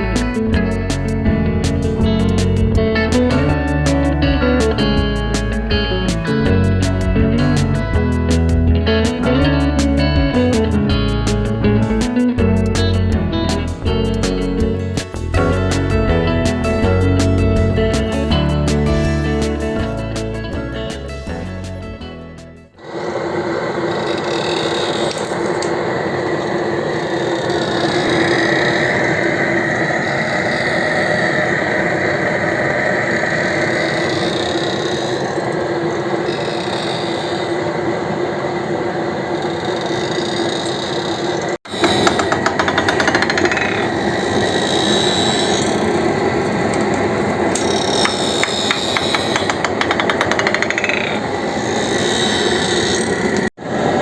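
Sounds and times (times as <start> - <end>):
machine rapid chattering: 39.5 - 46.5, 47.4 - 53.5
woodworking machine cutting wood: 39.5 - 54.0.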